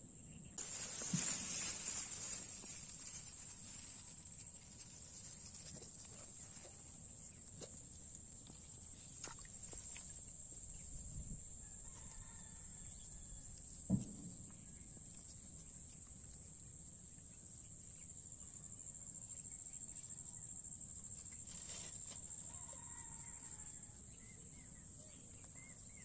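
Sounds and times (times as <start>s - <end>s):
low thump: 13.8s - 14.5s.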